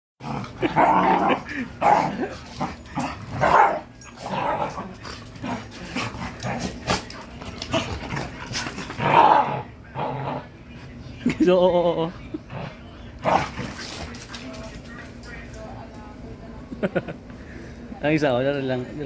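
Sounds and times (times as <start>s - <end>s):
dog barking: 3.4s - 3.8s.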